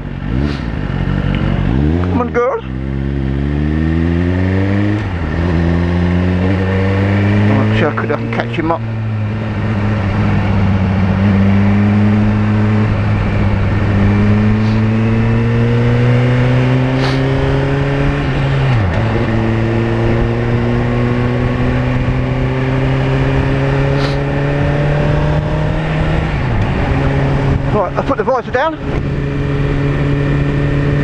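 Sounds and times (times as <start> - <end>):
motorcycle engine accelerating: 0.0 - 31.0
wind rushing: 8.8 - 27.8.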